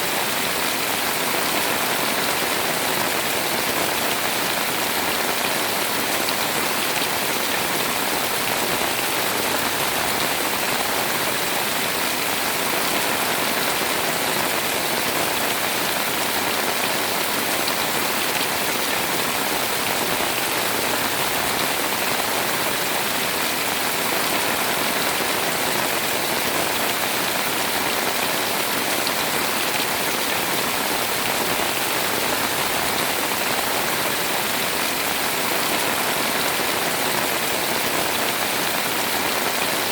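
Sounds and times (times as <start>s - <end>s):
pouring rain: 0.0s - 39.9s.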